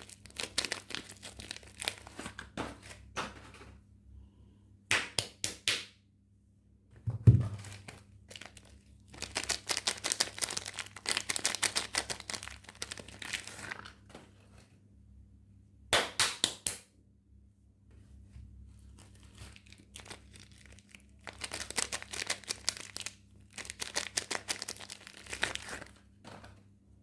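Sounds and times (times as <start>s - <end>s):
packaging crinkling and tearing: 0.0s - 3.0s, 7.6s - 14.1s, 18.8s - 26.6s
dull thump: 7.1s - 7.6s.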